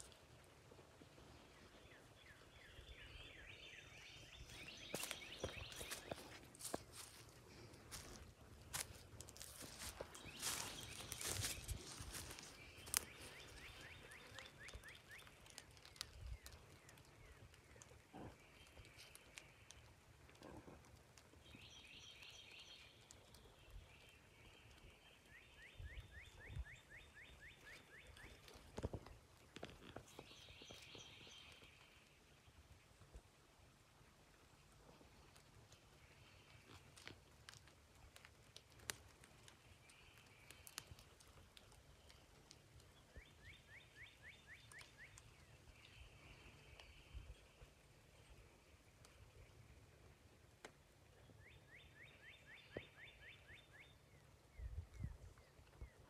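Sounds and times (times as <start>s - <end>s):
bird chirping: 1.4s - 6.4s, 9.6s - 17.5s, 29.6s - 32.0s, 51.2s - 56.0s.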